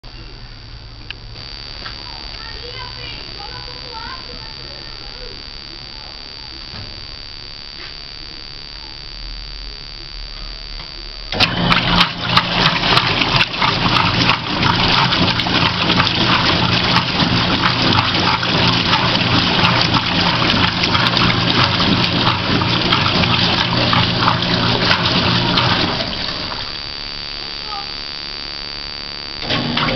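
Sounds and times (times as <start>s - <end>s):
washing machine motor hum: 0.3s - 7.0s, 11.2s - 26.9s, 29.4s - 29.9s
water sloshing in washing machine: 11.4s - 26.7s, 29.4s - 29.9s.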